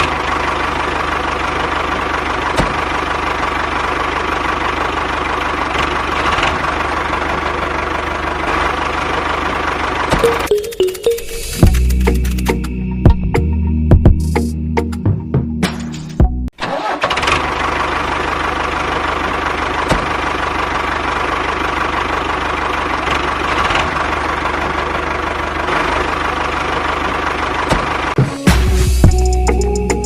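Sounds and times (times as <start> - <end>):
engine running: 0.0 - 30.0
music: 10.2 - 16.5, 28.2 - 30.0.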